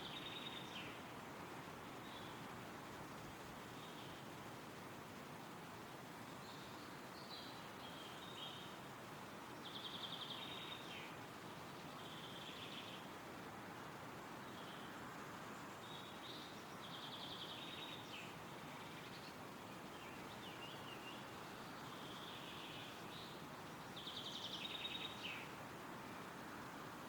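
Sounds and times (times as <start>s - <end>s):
wind rustling through trees: 0.0s - 27.0s
songbirds chirping and trilling: 14.4s - 26.2s.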